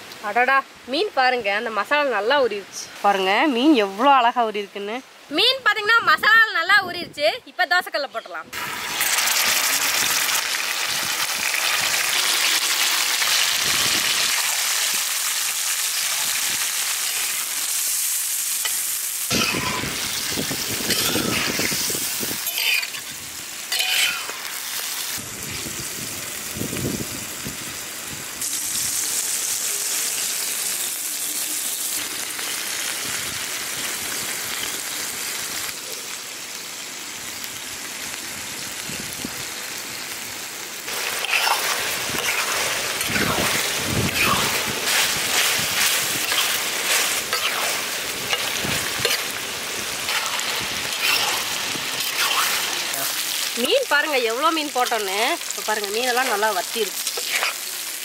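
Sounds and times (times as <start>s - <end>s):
octopus sizzling in hot oil: 7.9s - 58.0s
spatula scraping griddle: 20.8s - 23.1s, 23.7s - 24.4s, 40.9s - 49.4s, 50.0s - 53.2s, 57.1s - 57.6s.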